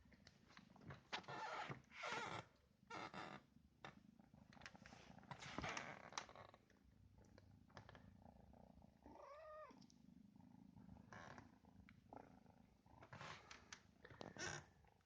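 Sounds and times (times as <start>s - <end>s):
cat purring: 3.7s - 15.0s
faint clicks: 9.7s - 10.0s.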